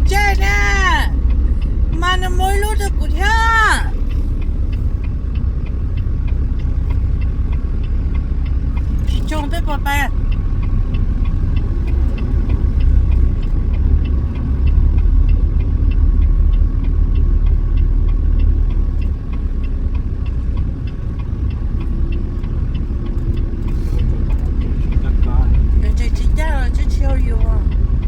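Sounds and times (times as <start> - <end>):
truck engine rumbling: 0.0 - 28.0
fast regular ticking: 0.1 - 28.0.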